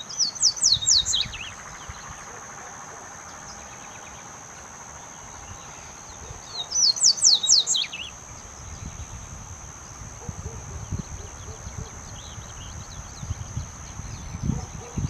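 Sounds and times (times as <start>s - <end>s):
bird singing whistled notes: 0.0s - 2.1s, 5.4s - 9.2s, 10.8s - 15.0s.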